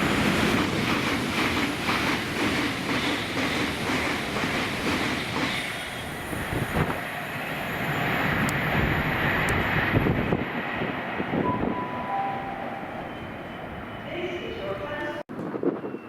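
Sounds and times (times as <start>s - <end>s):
train rumbling past: 0.0s - 16.0s
brief high tones: 11.4s - 14.0s.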